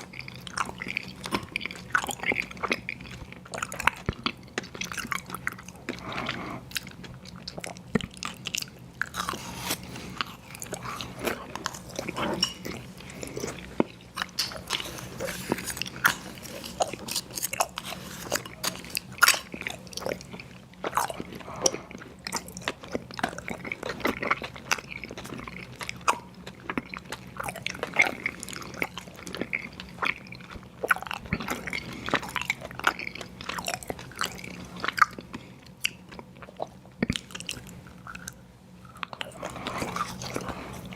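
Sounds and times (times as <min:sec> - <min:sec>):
chewing crunchy cereal: 0:00.0 - 0:40.9.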